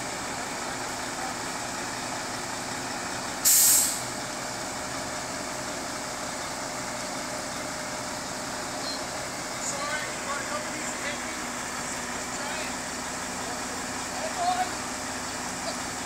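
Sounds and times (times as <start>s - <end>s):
diesel truck engine idling: 0.0s - 16.0s
air brakes hissing: 3.4s - 4.1s.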